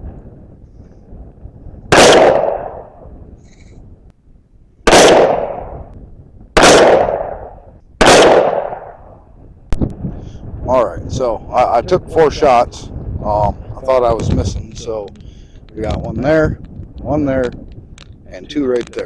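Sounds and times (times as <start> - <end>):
rifle shots with echo: 1.9 - 3.1, 4.8 - 5.9, 6.6 - 9.2.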